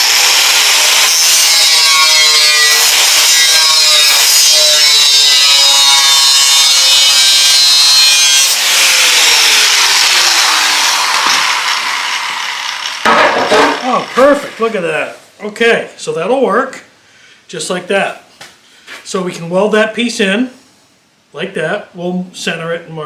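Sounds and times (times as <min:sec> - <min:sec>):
power tool cutting steel: 0:00.0 - 0:14.8.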